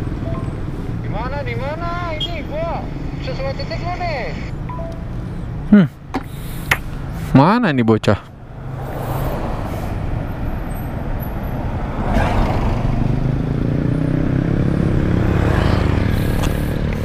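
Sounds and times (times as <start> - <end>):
passing vehicle: 0.0 - 17.0
vehicle engines running: 0.0 - 17.0.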